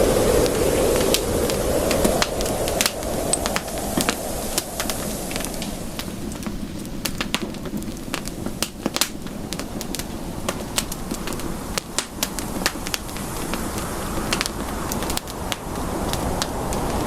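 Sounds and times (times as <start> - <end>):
campfire crackling: 0.0 - 17.0
low rumble of burning fire: 0.0 - 17.0.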